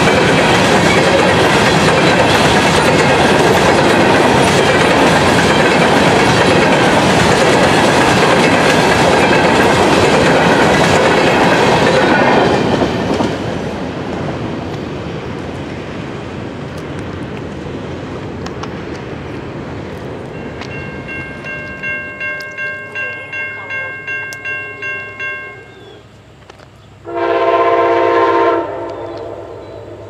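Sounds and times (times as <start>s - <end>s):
wheels clacking over rail joints: 0.0s - 26.8s
repeated ringing: 20.4s - 25.9s.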